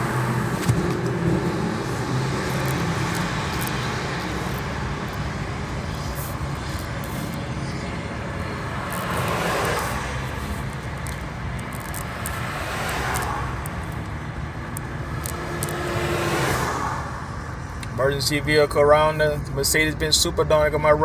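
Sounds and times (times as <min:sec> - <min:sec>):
vehicle passing: 0:00.0 - 0:17.8
car engine hum: 0:00.0 - 0:21.0
tyre and traffic noise: 0:00.0 - 0:21.0.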